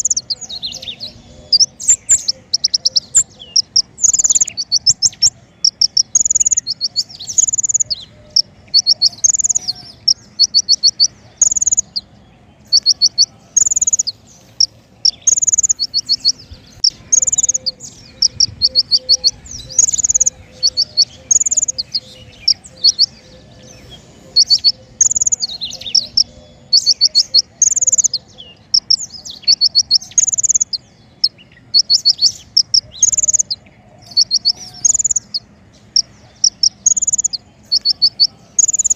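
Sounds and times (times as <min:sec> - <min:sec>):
songbird high rapid trills: 0:00.0 - 0:38.9.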